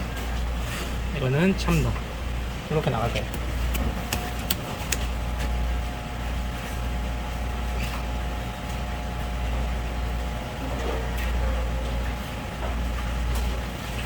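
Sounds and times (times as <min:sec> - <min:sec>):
faint steady whine: 0:00.0 - 0:14.0
low machine hum: 0:00.0 - 0:14.0
sharp clicks: 0:03.2 - 0:05.1.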